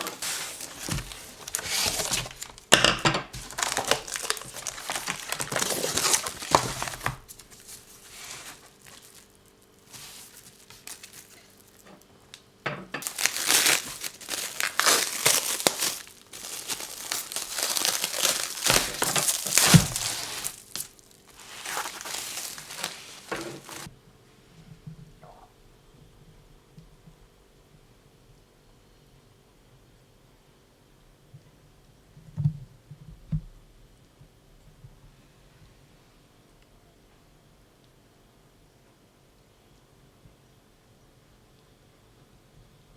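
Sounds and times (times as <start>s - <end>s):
packaging crinkling and tearing: 0.0s - 12.4s, 13.0s - 23.9s.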